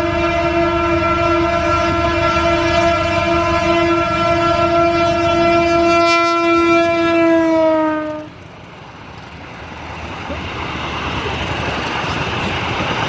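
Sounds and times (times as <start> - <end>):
train horn blast: 0.0 - 8.5
train rumble: 0.0 - 13.0.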